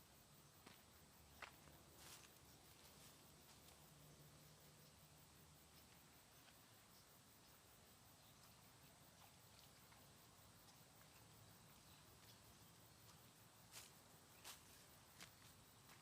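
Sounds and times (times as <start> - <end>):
faint ticks: 8.2 - 13.2.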